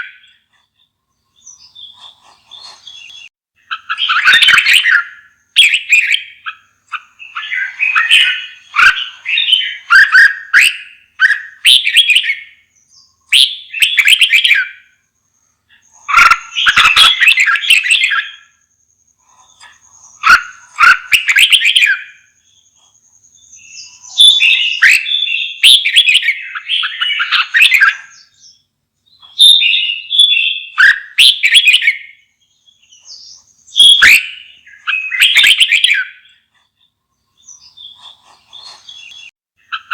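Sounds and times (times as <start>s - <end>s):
bulbul warbling song: 23.3s - 36.5s.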